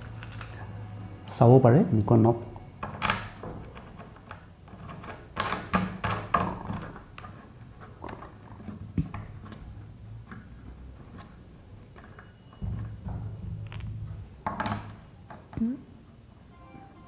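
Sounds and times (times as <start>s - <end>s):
clicks and knocks of parts handled: 0.0s - 0.6s.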